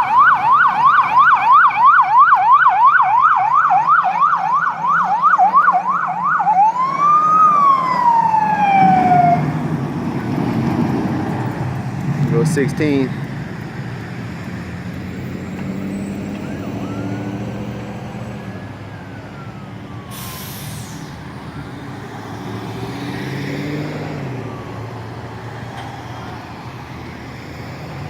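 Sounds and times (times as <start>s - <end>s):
air brakes hissing: 20.1s - 21.2s.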